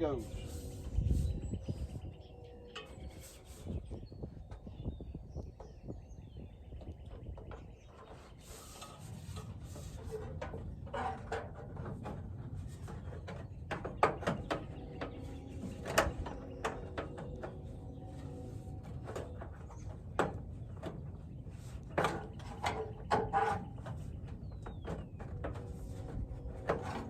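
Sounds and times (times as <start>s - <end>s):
metal downspout knocks and clanks: 7.2s - 27.0s.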